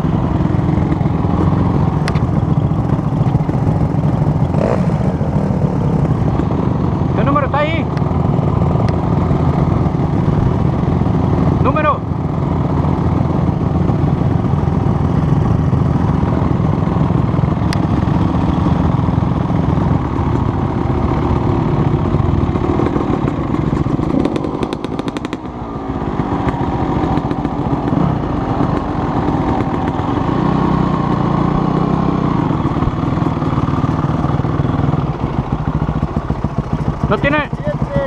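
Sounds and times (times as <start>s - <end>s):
dirt bike engine running: 0.0s - 38.0s.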